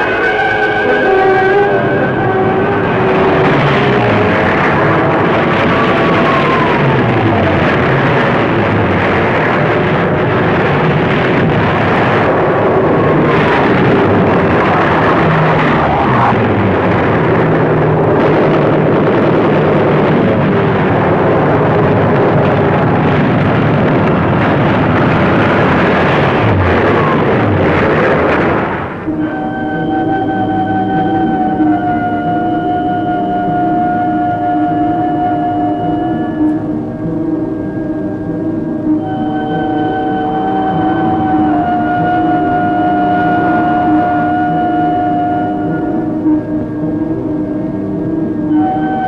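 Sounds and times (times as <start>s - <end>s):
propeller aircraft diving overhead: 0.0s - 49.0s
explosions: 1.5s - 29.2s.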